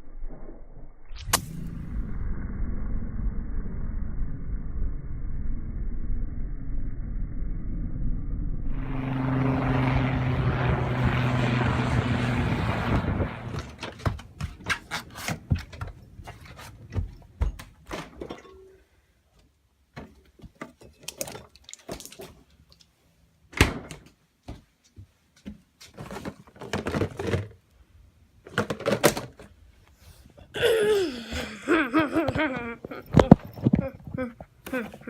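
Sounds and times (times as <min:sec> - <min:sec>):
knocks and thumps: 0:13.5 - 0:18.5.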